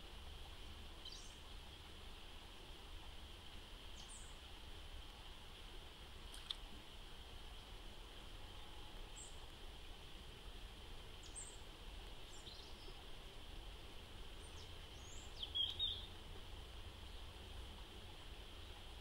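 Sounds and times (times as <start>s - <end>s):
steady faint hiss: 0.0s - 19.0s
short high bird chirps: 15.4s - 16.1s.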